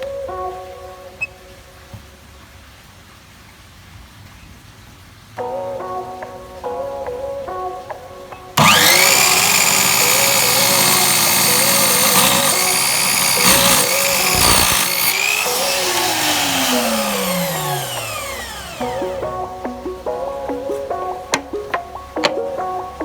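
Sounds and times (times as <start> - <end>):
electric saw motor whining: 8.6 - 19.4
saw cutting through wood: 8.6 - 19.4.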